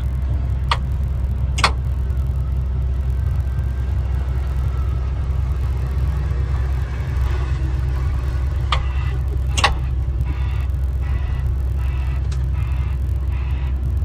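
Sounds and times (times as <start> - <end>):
sharp clicks: 0.0 - 2.4, 8.6 - 14.0
heavy vehicle engine rumbling: 0.0 - 14.0.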